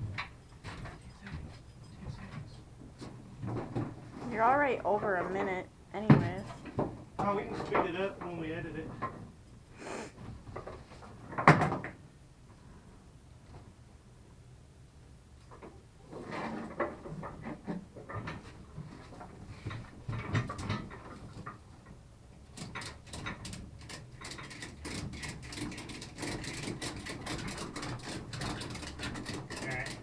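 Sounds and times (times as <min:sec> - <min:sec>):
straps and buckles clattering: 0:22.6 - 0:30.0.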